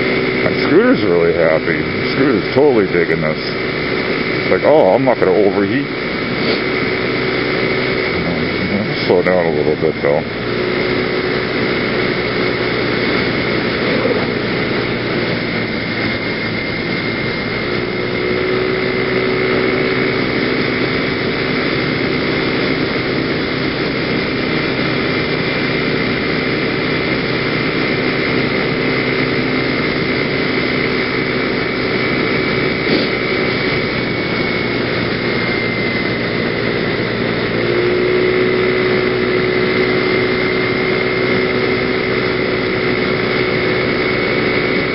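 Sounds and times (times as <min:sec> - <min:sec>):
scooter engine cruising: 0:00.0 - 0:44.9.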